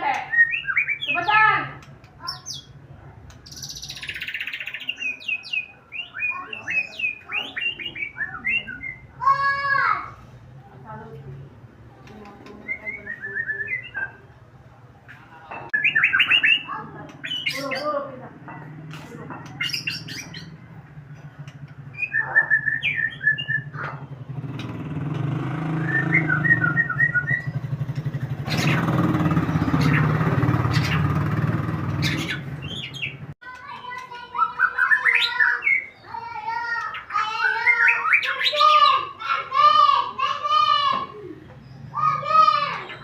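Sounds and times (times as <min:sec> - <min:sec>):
bird chirping and trilling: 0:00.0 - 0:10.2, 0:12.0 - 0:18.7, 0:19.3 - 0:43.0
engine humming: 0:06.9 - 0:33.4.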